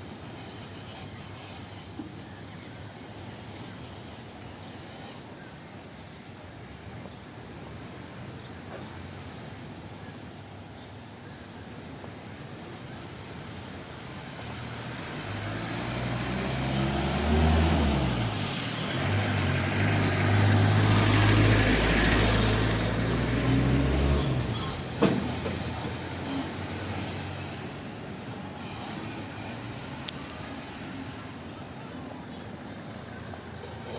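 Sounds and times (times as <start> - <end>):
vehicle engine passing by: 14.2 - 28.0.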